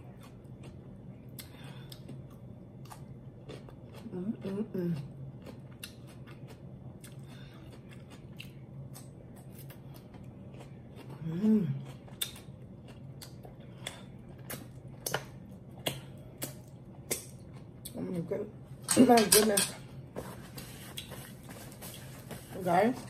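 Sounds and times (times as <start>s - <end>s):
close chewing with mouth clicks: 5.4s - 18.0s.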